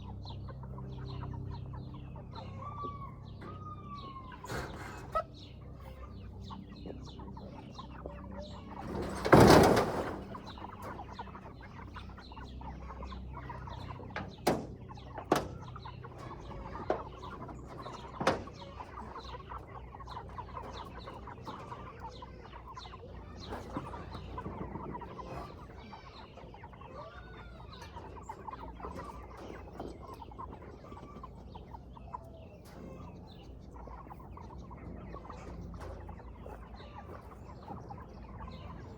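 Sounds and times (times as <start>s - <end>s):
chickens clucking and peeping: 0.0s - 38.9s.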